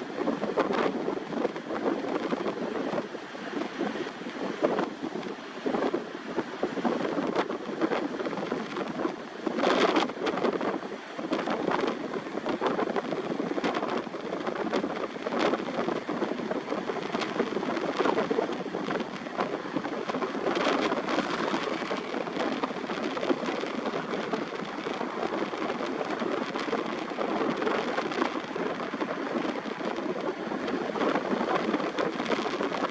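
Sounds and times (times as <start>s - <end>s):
strong wind buffeting microphone: 0.0s - 32.9s.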